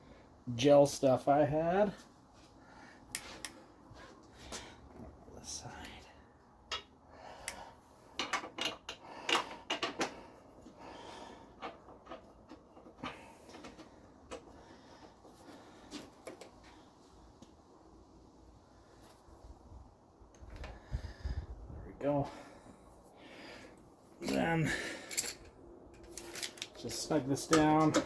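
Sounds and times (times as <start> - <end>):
hand tools and bolts clicking: 6.7 - 10.2, 24.2 - 28.0.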